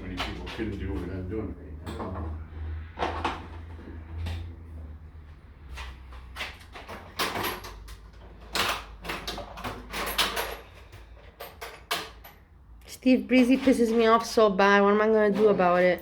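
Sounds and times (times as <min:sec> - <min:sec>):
tools clicking and clanking: 0:00.0 - 0:02.4, 0:05.6 - 0:16.0.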